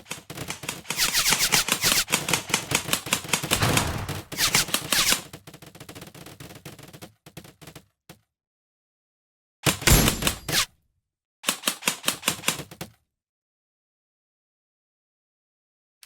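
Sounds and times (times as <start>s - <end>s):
airsoft gun firing bursts: 0.0s - 5.6s.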